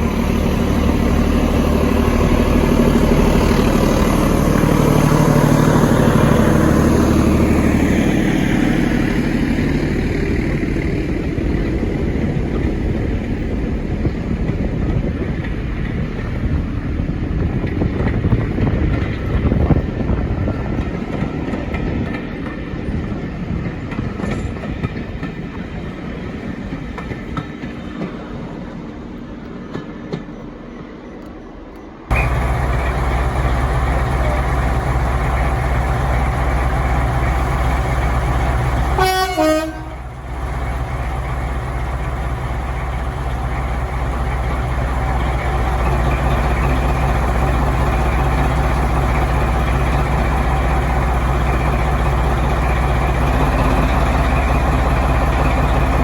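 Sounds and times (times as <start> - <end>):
diesel locomotive engine rumbling: 0.0 - 56.0
locomotive horn toot: 38.9 - 40.2.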